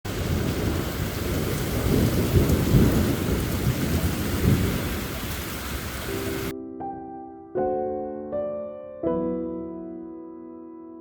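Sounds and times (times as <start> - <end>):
heavy rain falling: 0.0 - 6.5
thunder rumbling: 0.0 - 6.5.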